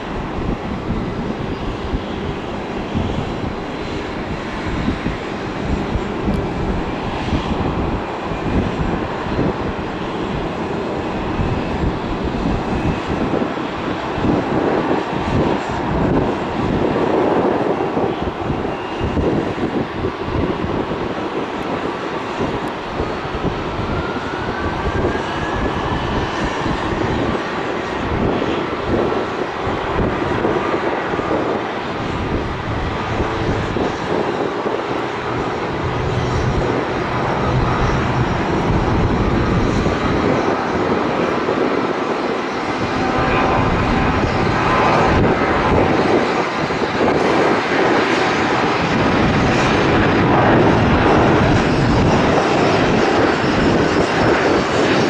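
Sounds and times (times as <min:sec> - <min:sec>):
airliner engines roaring: 0:00.0 - 0:55.0.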